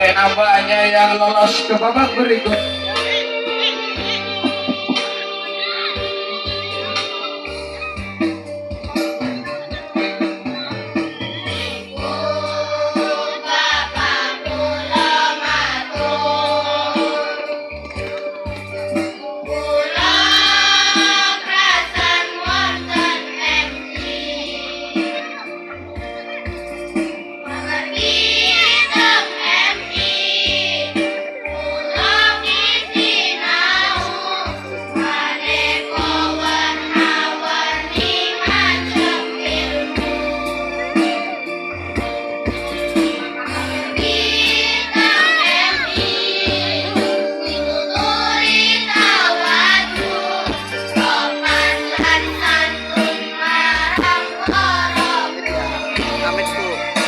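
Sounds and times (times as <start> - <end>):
instrumental backing: 0.0 - 57.0
girls choir singing: 10.8 - 18.0, 19.1 - 25.4, 27.1 - 41.8, 43.0 - 57.0.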